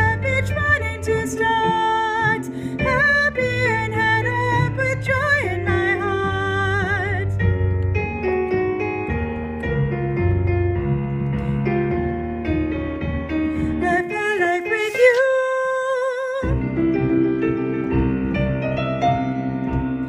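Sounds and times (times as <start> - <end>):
soprano singing with vibrato: 0.0 - 7.4, 13.8 - 16.5
piano playing chords: 0.0 - 20.0.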